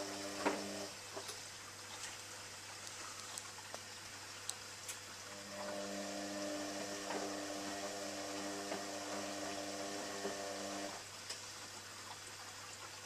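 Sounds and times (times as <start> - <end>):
dishwasher pump motor humming: 0.0 - 1.0, 5.3 - 11.1
low electrical hum: 0.0 - 13.0.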